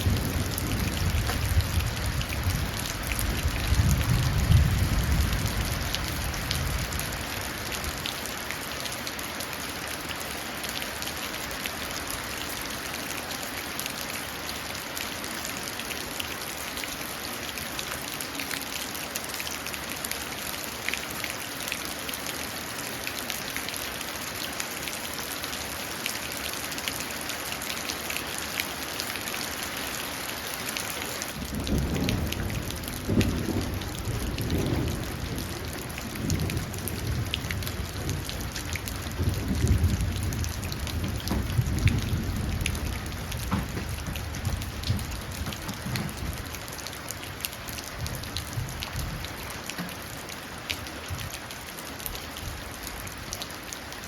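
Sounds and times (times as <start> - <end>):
rolling thunder: 0.0 - 7.1, 31.4 - 46.6, 48.0 - 49.3
rain dripping into puddle: 0.0 - 54.0.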